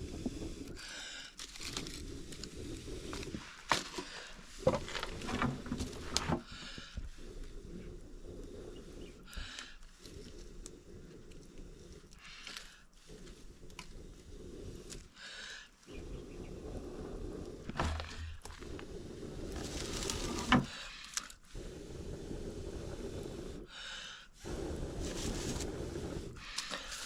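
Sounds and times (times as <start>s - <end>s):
firewood rustling and scraping: 0.0s - 15.1s, 16.7s - 21.4s, 24.4s - 27.0s
wood snapping: 1.4s - 6.9s, 19.5s - 21.4s.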